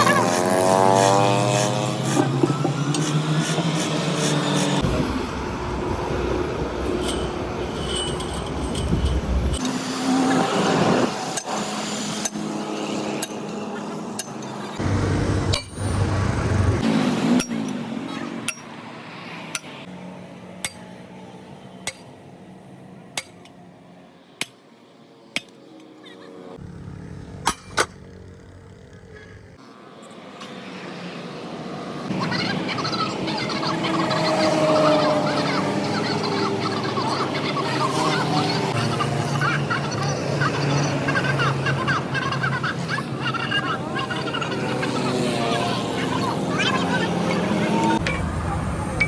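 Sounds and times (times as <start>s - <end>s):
workshop rumble and clatter: 0.0s - 18.8s
metal clinks and taps: 6.8s - 9.6s.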